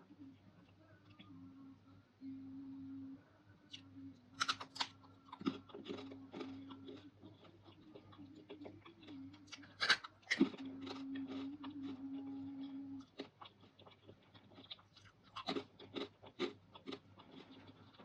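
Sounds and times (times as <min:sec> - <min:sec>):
steady low hum: 0:00.0 - 0:18.0
crisp chewing crunches: 0:04.4 - 0:18.0.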